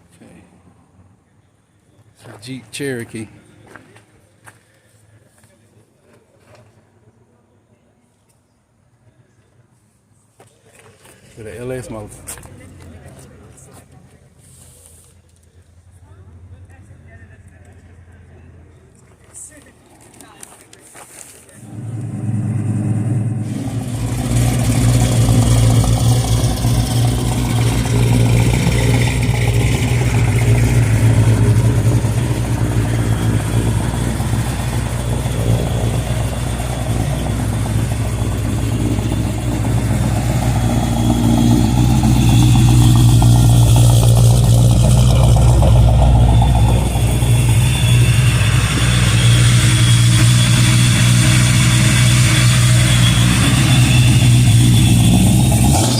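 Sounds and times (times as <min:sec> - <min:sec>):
car engine idling: 0:21.6 - 0:55.9.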